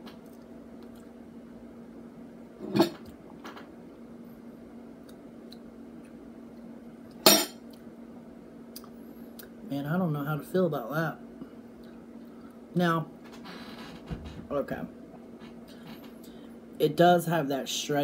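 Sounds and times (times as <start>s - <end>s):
steady background hum: 0.0s - 18.0s
person chewing: 0.2s - 1.2s.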